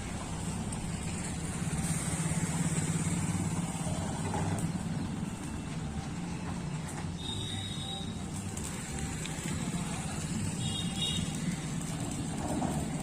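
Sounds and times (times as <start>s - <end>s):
diesel engine running: 0.0s - 7.0s.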